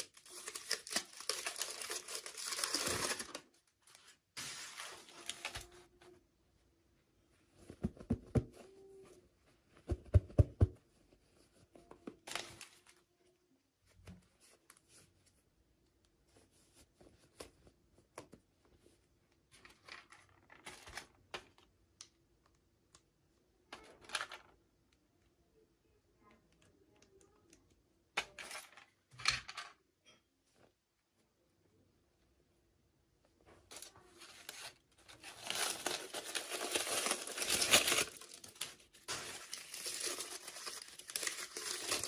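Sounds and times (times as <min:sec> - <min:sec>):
plastic packaging rustling: 0:00.0 - 0:05.9, 0:33.7 - 0:42.0.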